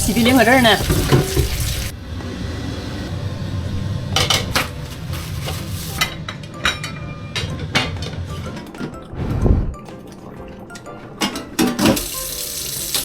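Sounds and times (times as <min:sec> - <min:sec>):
dishes and utensils clinking: 0:00.1 - 0:01.9, 0:04.2 - 0:09.1, 0:09.8 - 0:13.0.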